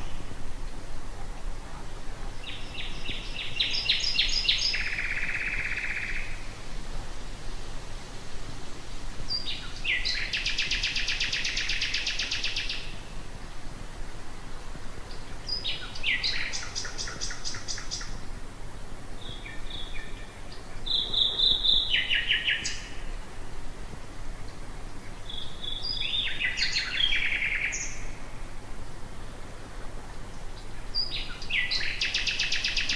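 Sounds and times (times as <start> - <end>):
nightingale singing trills: 0.0 - 0.4, 2.2 - 6.5, 9.3 - 13.3, 15.0 - 18.3, 19.2 - 23.3, 24.4 - 28.5, 30.3 - 32.9
faint low hum and hiss: 0.0 - 32.9.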